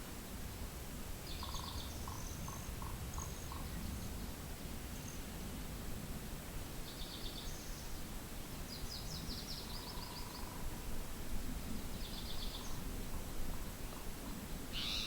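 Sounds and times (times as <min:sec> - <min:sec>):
wind rumble on microphone: 0:00.0 - 0:15.0
songbird trilling: 0:01.3 - 0:03.8, 0:14.7 - 0:15.0.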